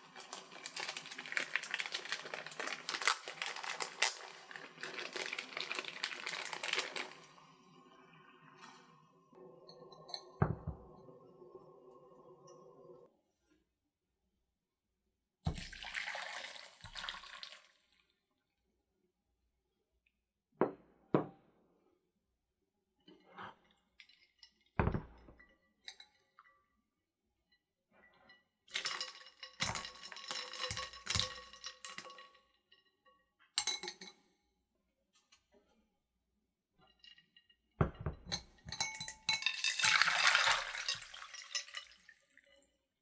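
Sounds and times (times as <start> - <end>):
water pouring into a vessel: 0.0 - 13.0, 15.5 - 18.0, 28.7 - 32.4, 39.3 - 42.7.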